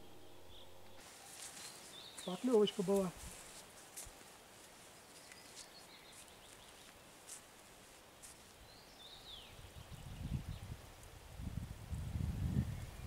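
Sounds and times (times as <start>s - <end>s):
distant bird calls: 0.0s - 3.0s, 4.0s - 7.4s
faint background hiss: 0.0s - 13.0s.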